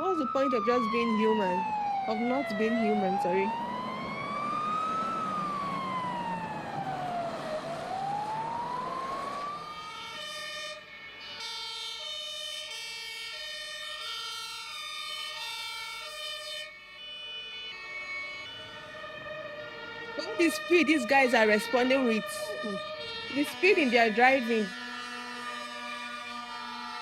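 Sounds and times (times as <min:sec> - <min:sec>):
fire truck siren: 0:00.0 - 0:27.0.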